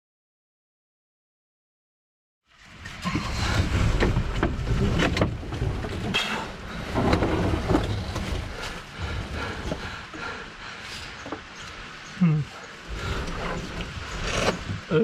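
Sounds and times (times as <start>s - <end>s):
wind rumble on microphone: 2.7s - 10.3s, 12.8s - 15.0s
brush rustling: 6.3s - 14.9s.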